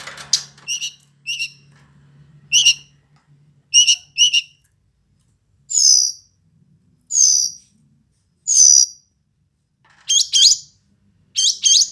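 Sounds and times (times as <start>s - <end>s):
bird singing buzzy calls: 0.7s - 1.7s, 2.5s - 2.9s, 3.7s - 4.6s, 5.7s - 6.3s, 7.1s - 7.6s, 11.4s - 11.9s.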